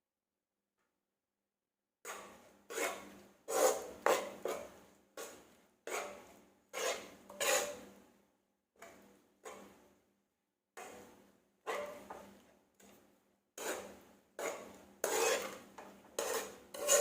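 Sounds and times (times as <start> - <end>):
utensil scraping a bowl: 2.1 - 7.9, 11.6 - 12.3, 13.6 - 17.0.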